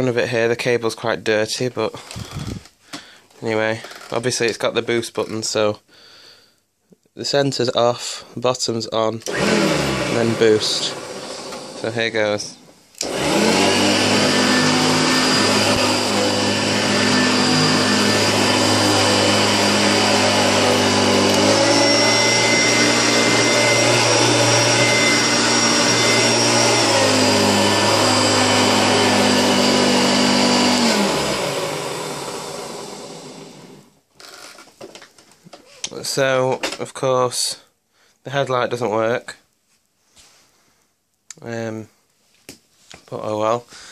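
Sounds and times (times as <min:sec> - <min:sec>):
vacuum cleaner motor humming: 0:09.3 - 0:33.8.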